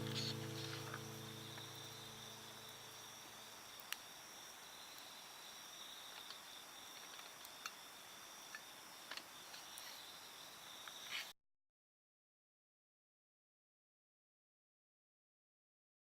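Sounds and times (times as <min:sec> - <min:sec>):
night insects trilling: 0:00.0 - 0:11.3.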